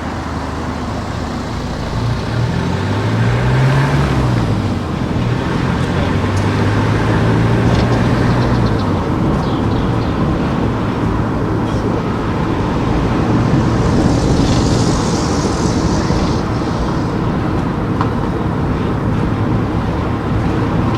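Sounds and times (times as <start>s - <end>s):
car engine and tyre noise: 0.0s - 20.9s
hiss: 11.6s - 18.7s.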